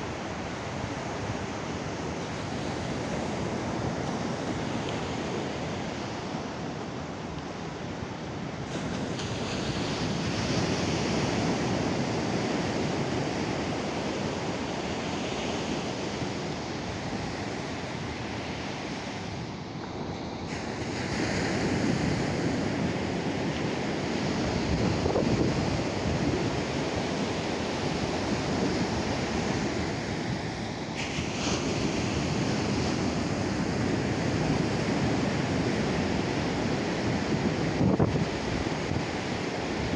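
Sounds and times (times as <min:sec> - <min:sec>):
surf breaking on beach: 0:20.4 - 0:39.9.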